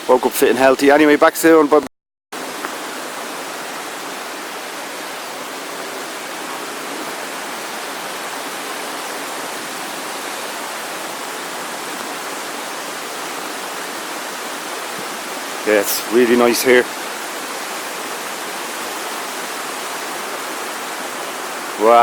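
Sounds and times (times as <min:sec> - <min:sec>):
fast-flowing water rushing: 0:00.0 - 0:01.8, 0:02.4 - 0:22.0.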